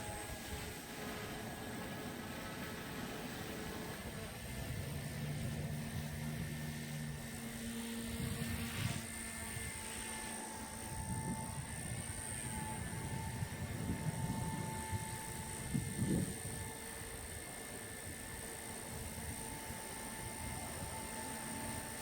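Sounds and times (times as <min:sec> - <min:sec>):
rc helicopter whine: 0:00.0 - 0:22.0
wind buffeting microphone: 0:03.7 - 0:09.9, 0:10.7 - 0:22.0.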